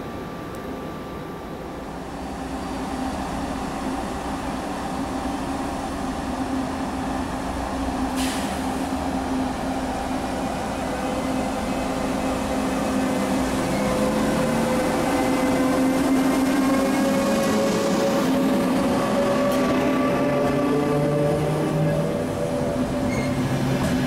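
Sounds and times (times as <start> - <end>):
train electric hum and rumble: 0.0 - 24.0
short hiss: 8.2 - 8.7.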